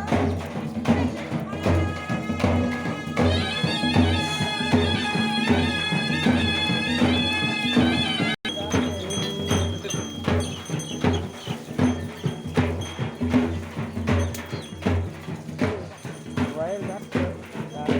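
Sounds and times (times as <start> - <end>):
drum beats: 0.0 - 17.9
held melody line: 2.0 - 10.5.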